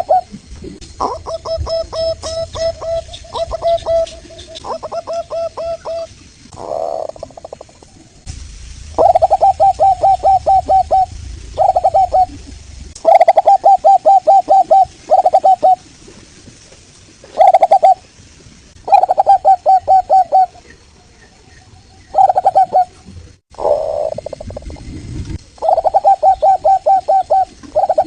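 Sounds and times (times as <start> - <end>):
dove cooing: 0.0 - 7.8, 9.0 - 15.9, 17.3 - 18.0, 18.8 - 20.8, 22.1 - 23.0, 23.6 - 24.7, 25.6 - 28.0.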